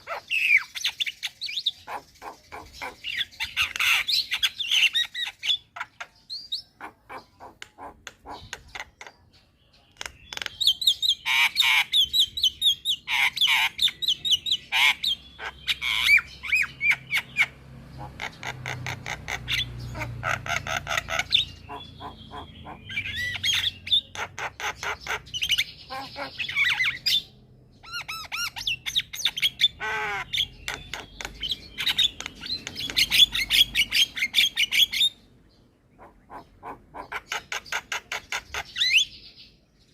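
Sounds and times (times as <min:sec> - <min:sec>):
myna bird chattering song: 0:00.0 - 0:39.9.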